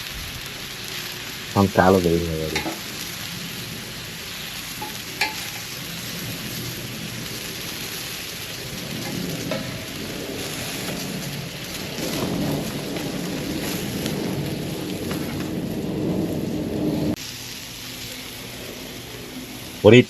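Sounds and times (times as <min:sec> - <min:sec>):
food sizzling on a grill: 0:00.0 - 0:20.0
low rumble: 0:01.6 - 0:17.2.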